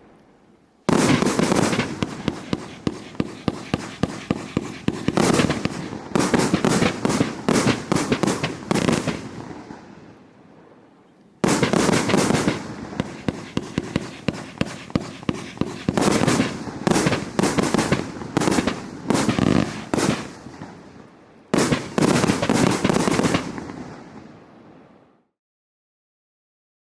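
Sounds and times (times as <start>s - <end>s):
firework cake volleys: 0.9s - 9.8s, 11.4s - 20.8s.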